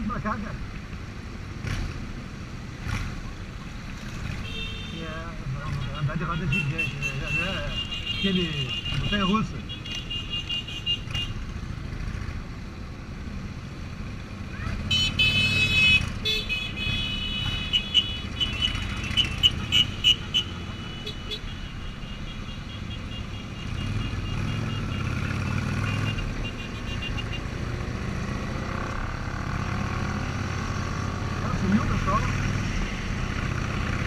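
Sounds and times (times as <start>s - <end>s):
road rumble: 0.0s - 34.0s
high horn toots: 4.4s - 5.1s, 5.7s - 11.4s, 14.8s - 27.8s
motorcycle engine: 9.7s - 34.0s.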